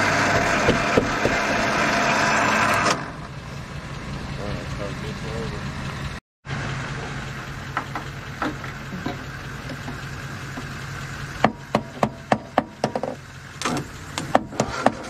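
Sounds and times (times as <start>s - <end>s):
sharp knocks: 0.3s - 1.5s, 11.4s - 15.0s.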